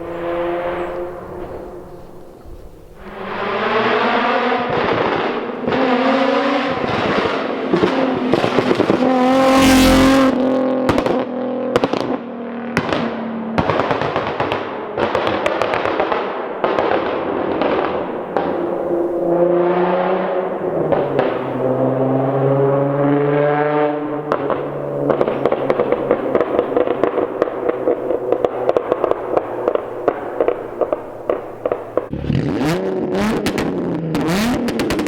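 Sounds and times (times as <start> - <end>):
car engine revving hard: 3.0 - 11.2, 17.6 - 35.0
exhaust crackles and pops: 6.7 - 20.2, 20.8 - 21.8, 24.2 - 35.0.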